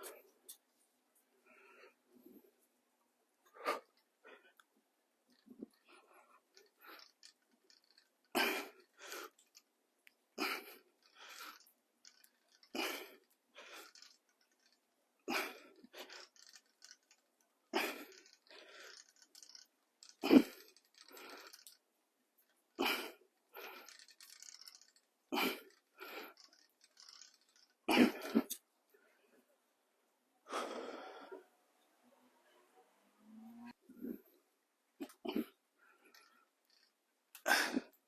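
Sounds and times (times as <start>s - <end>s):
person breathing hard: 30.4s - 31.5s.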